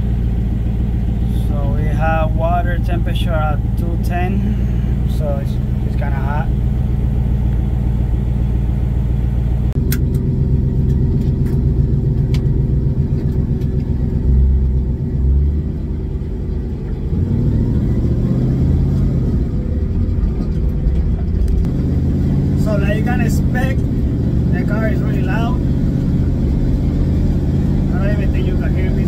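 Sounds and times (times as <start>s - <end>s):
car engine idling: 0.0s - 29.0s
sharp clicks: 9.8s - 11.6s.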